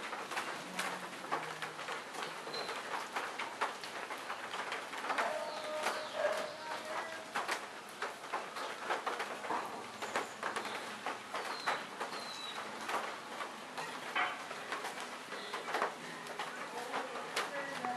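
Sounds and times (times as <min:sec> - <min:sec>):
raindrops tapping: 0:00.0 - 0:17.9
birds calling: 0:09.4 - 0:13.1, 0:13.7 - 0:17.0.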